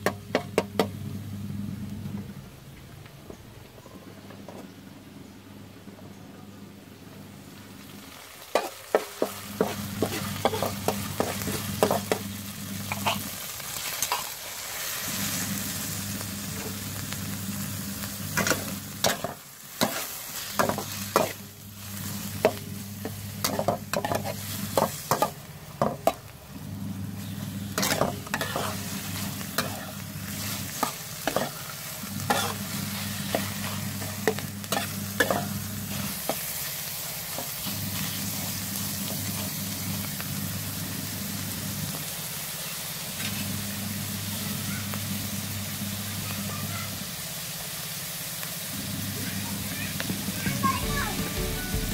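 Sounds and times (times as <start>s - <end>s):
food sizzling in a wok: 0.0s - 2.1s, 7.2s - 51.9s
metal spatula scraping a pan: 8.6s - 12.2s, 12.9s - 13.3s, 23.4s - 26.0s, 27.8s - 36.4s.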